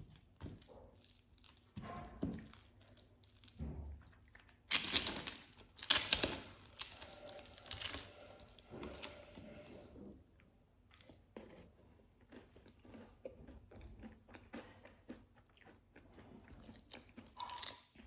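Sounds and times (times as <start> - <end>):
chewing: 0.0 - 18.0
crunchy food being crunched: 2.4 - 3.6, 4.4 - 9.4, 16.6 - 18.0.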